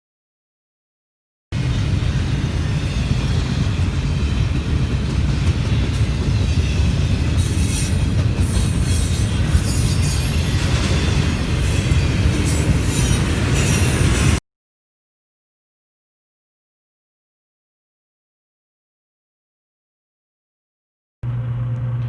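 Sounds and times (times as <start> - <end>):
train cars rumbling: 1.6 - 14.4
high wheel squeals: 6.5 - 14.4.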